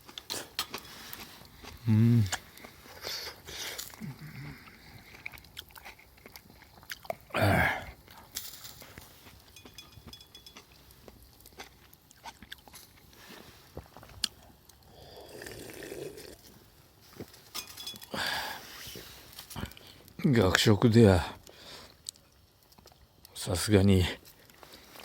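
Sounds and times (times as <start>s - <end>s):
person chewing food: 0.0s - 16.6s.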